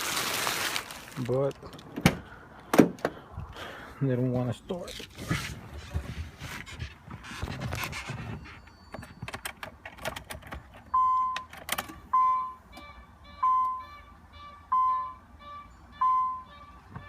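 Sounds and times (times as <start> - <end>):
keys rustling and clicking: 6.7 - 12.0
car warning chime dinging: 8.4 - 17.0.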